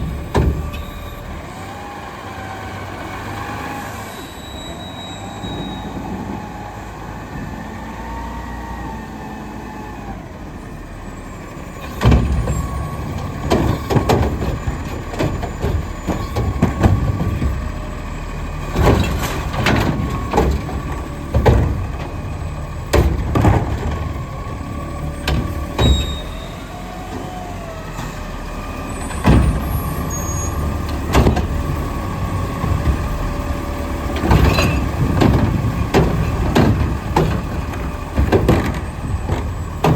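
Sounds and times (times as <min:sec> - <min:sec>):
loud bangs and clatter of carts: 0:00.0 - 0:01.8, 0:11.7 - 0:39.9
garbage truck engine drone: 0:00.0 - 0:39.9
gliding squeal: 0:03.9 - 0:06.2, 0:28.7 - 0:30.8.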